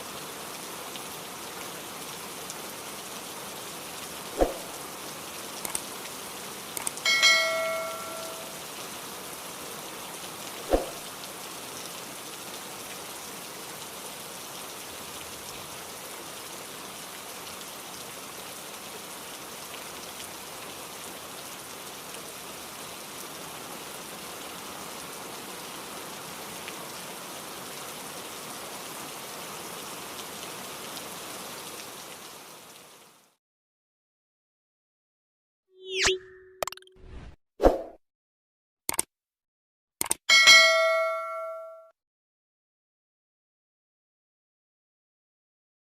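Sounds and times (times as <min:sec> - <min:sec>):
rain falling: 0:00.0 - 0:33.4
metallic ring: 0:07.1 - 0:08.5, 0:40.3 - 0:41.9.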